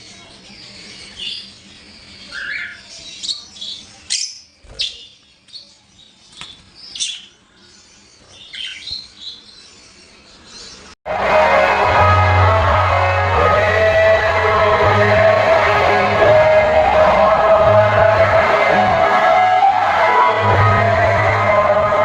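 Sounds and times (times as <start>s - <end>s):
birds chirping and squawking: 0.0s - 11.0s
loud music with singing: 11.1s - 22.0s.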